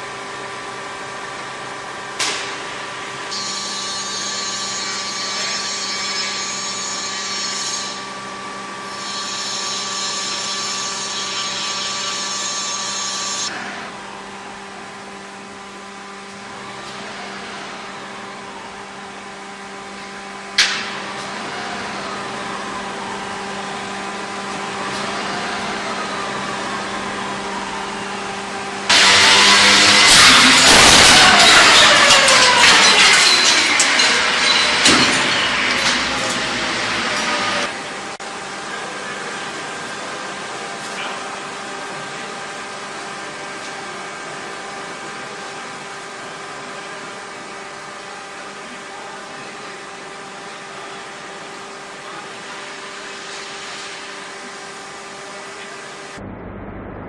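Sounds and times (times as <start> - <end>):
machine humming: 0.0 - 38.1, 56.0 - 57.0
sudden loud noise: 28.9 - 34.3, 56.0 - 57.0.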